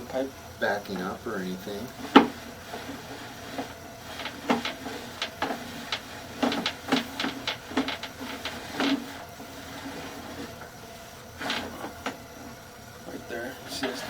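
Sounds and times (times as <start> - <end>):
mechanical clicks and knocks: 1.9 - 9.2.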